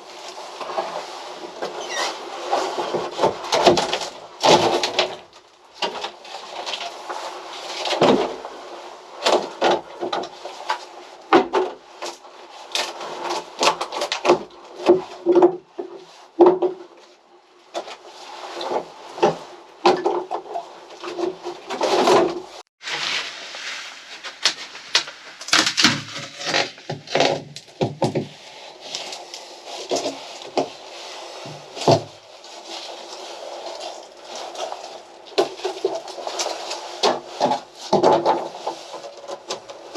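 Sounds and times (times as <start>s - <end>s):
wood knocking and clattering: 13.6s - 16.9s, 19.2s - 22.4s, 24.4s - 28.4s, 31.5s - 32.1s, 37.0s - 38.5s.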